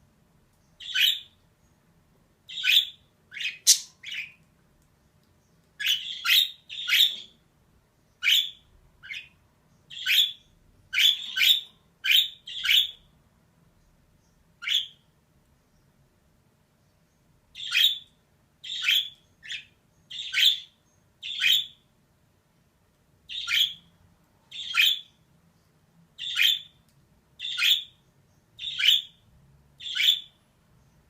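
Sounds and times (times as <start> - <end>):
budgerigar calls: 2.5 - 4.3, 9.9 - 13.0, 29.8 - 30.3.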